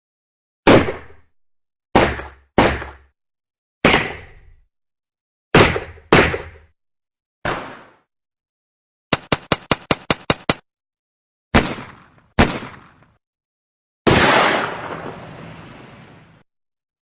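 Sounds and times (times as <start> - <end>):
machine-gun style shots: 9.1 - 10.6, 11.6 - 13.2
big explosion: 14.1 - 16.4.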